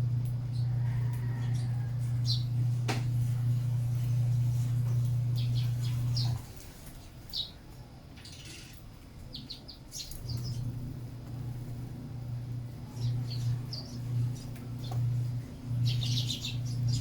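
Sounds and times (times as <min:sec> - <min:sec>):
sparrows chirping: 0:00.0 - 0:17.0
steady low hum: 0:00.0 - 0:17.0.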